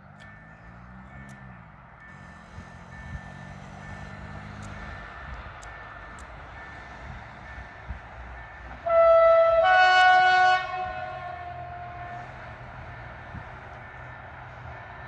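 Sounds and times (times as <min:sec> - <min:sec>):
locomotive horn blast: 0:08.7 - 0:12.9.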